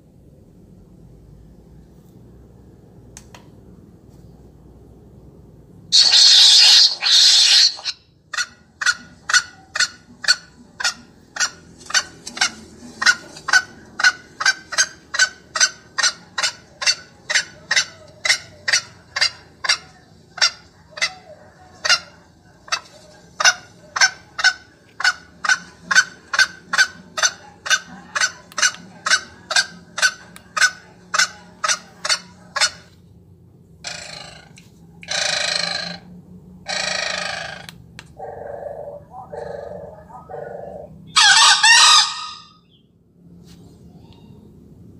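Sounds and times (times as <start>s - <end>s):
bursts of hiss: 5.9s - 7.9s
recorded bird call: 5.9s - 32.9s, 33.8s - 43.0s.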